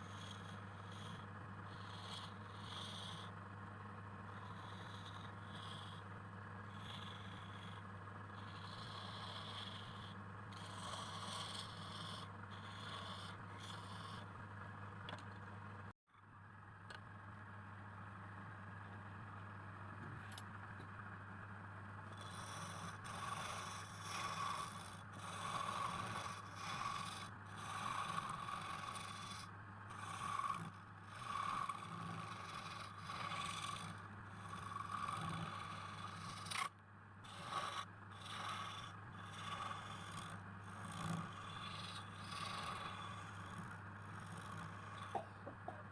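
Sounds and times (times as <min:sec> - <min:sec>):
machine hum: 0:00.0 - 0:45.9.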